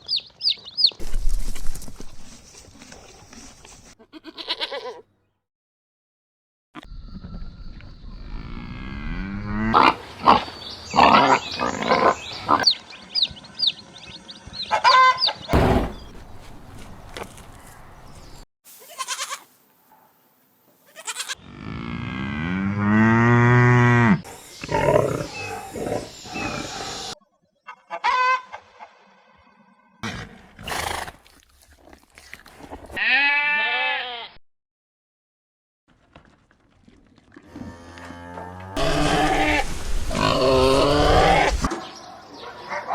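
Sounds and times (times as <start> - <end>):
goat bleating: 4.0 - 5.1, 18.8 - 19.5, 20.9 - 21.4, 33.0 - 34.4, 38.8 - 41.7
farm animals calling: 9.6 - 19.6, 20.8 - 29.0, 38.7 - 42.9
short rough noises: 15.6 - 16.9.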